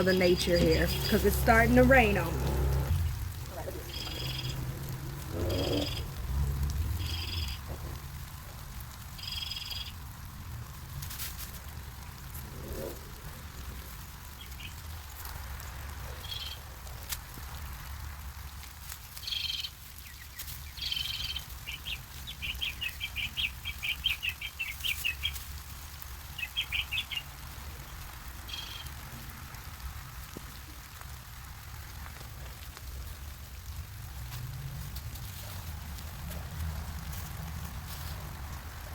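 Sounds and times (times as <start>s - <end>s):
songbird chirps and trills: 0.0s - 6.2s, 6.9s - 7.7s, 9.2s - 10.0s, 19.1s - 25.5s, 26.2s - 29.0s
low background rumble: 0.0s - 19.2s.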